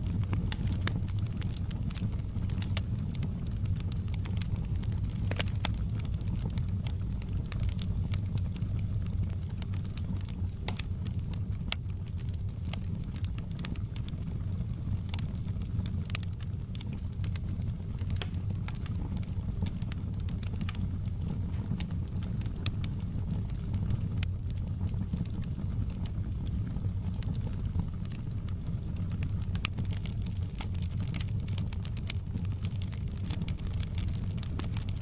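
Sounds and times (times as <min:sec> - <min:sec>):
fire crackling and popping: 0:00.0 - 0:35.0
low rumble of burning logs: 0:00.0 - 0:35.0.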